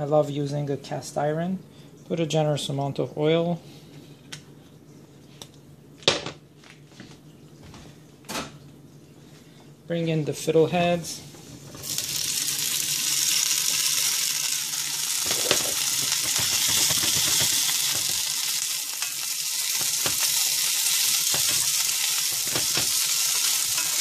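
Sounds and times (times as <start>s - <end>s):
vegetables sizzling in hot oil: 11.7s - 24.0s
wooden spoon knocking pan: 15.3s - 18.2s, 21.2s - 21.7s.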